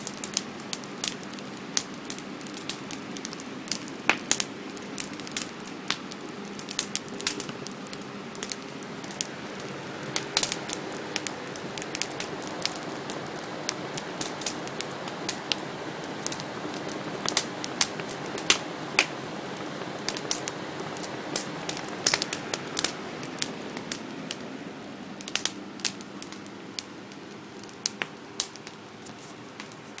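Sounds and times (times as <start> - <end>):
sharp fire pops: 0.0 - 15.6, 20.1 - 24.4, 25.2 - 26.9
campfire crackling: 0.0 - 30.0.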